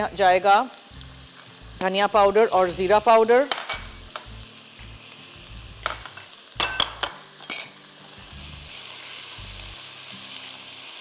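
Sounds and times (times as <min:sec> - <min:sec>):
chicken sizzling in a wok: 0:00.0 - 0:11.0.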